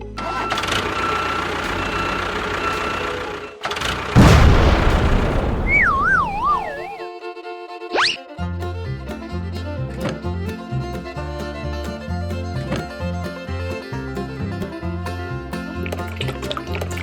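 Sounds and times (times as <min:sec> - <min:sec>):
loud crash: 0:04.0 - 0:07.0
wobbling descending whistle: 0:04.2 - 0:07.0.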